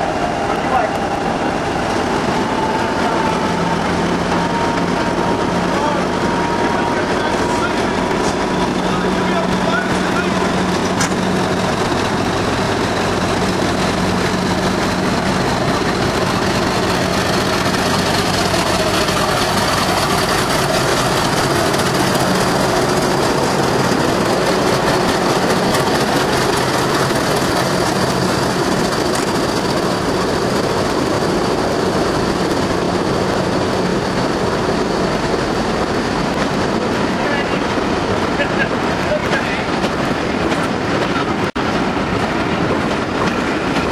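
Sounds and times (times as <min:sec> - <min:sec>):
diesel locomotive running: 0:00.0 - 0:43.9.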